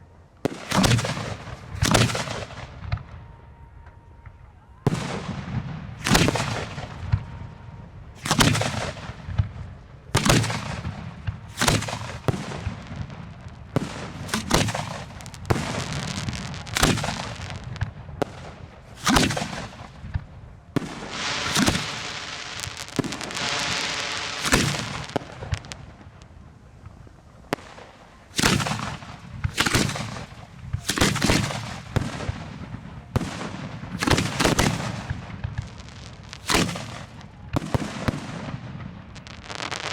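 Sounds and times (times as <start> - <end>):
fireworks booming: 0.4 - 39.9
fireworks hissing: 20.9 - 26.3, 39.2 - 39.9.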